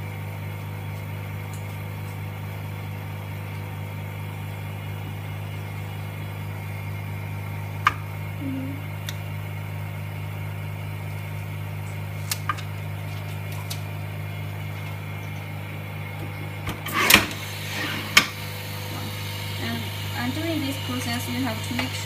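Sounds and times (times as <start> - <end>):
vacuum pump humming: 0.0 - 22.0
film rustling: 11.9 - 14.0.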